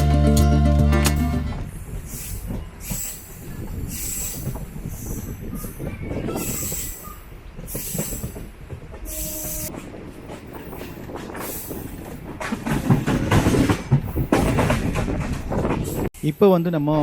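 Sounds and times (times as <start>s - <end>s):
train rumbling: 0.0s - 17.0s
wheels clattering over track: 5.3s - 16.1s.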